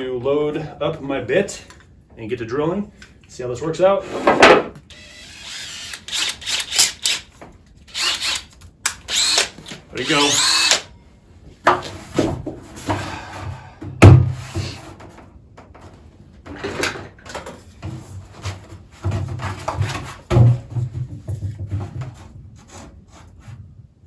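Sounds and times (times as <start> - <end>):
knocks on plastic barrel: 13.8 - 14.4, 19.1 - 22.2.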